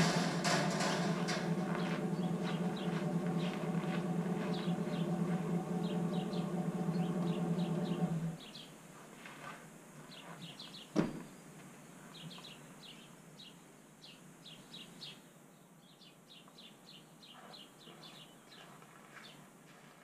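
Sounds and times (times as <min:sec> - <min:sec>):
low outdoor hiss: 0:00.0 - 0:19.9.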